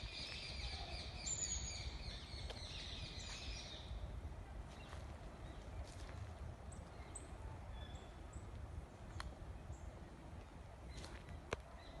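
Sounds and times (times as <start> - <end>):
small birds chirping: 0.0 - 4.0.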